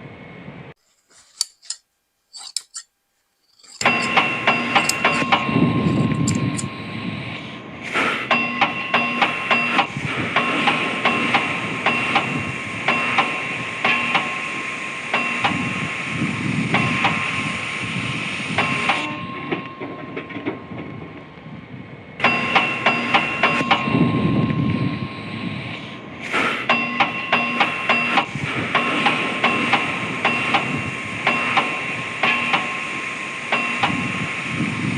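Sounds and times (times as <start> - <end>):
hammer striking steel: 3.5 - 6.7
steady hiss: 28.4 - 34.9.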